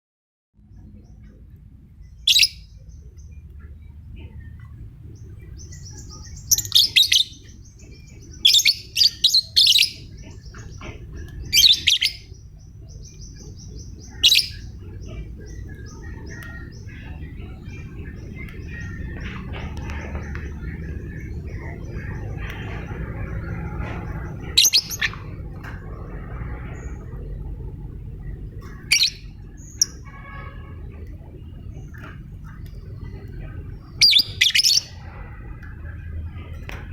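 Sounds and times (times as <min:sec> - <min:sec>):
low background rumble: 0:00.6 - 0:36.9
lovebird calling: 0:05.5 - 0:25.4, 0:31.0 - 0:35.0
bird chattering: 0:05.6 - 0:25.5, 0:31.7 - 0:35.0.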